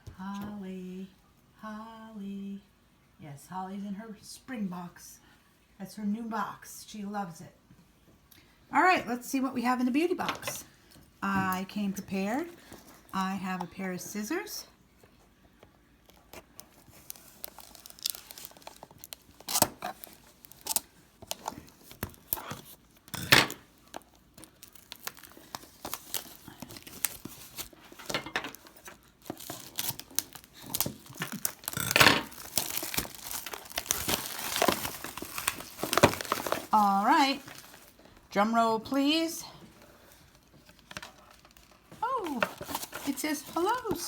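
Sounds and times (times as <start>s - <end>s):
packaging being torn: 16.1s - 22.8s, 23.8s - 28.0s, 28.6s - 36.8s.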